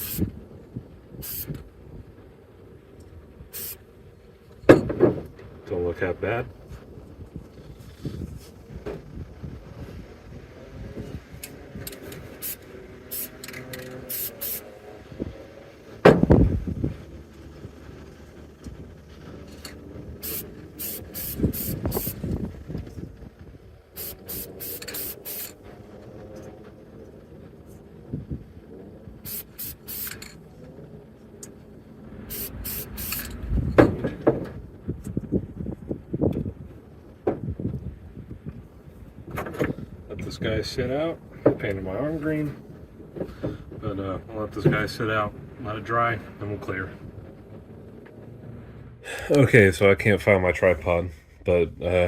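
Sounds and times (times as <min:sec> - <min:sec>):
spray paint can hissing: 0:00.0 - 0:00.3, 0:01.2 - 0:01.6, 0:03.5 - 0:03.8, 0:12.0 - 0:14.8, 0:20.2 - 0:22.2, 0:24.0 - 0:25.6, 0:29.2 - 0:30.3, 0:32.3 - 0:33.3
handling knocks and bumps: 0:04.6 - 0:05.5, 0:16.0 - 0:17.0
loud low thump: 0:16.0 - 0:16.7.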